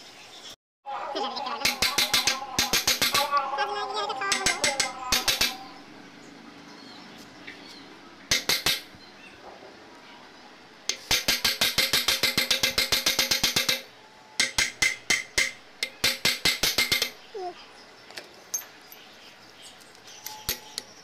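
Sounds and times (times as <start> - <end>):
hand tool tapping metal: 1.6 - 3.4, 4.3 - 5.7, 8.3 - 8.9, 10.9 - 17.2, 19.9 - 21.0.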